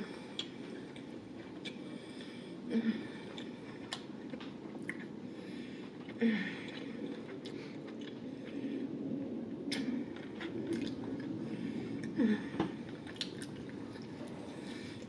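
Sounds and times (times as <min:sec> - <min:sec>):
wet mouth chewing sounds: 0:00.2 - 0:02.4, 0:03.3 - 0:05.3, 0:06.0 - 0:08.6, 0:09.7 - 0:12.2, 0:12.9 - 0:15.0.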